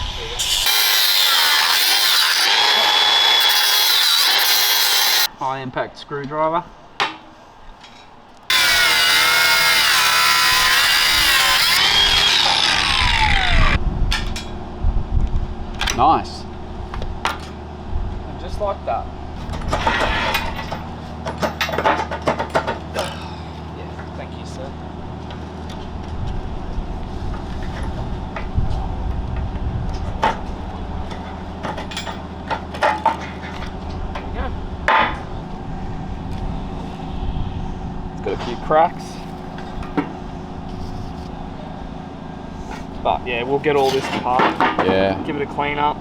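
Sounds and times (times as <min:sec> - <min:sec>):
power tool whining under load: 0:00.0 - 0:05.3, 0:08.5 - 0:14.4
workshop machinery humming: 0:00.0 - 0:05.3, 0:08.5 - 0:14.8.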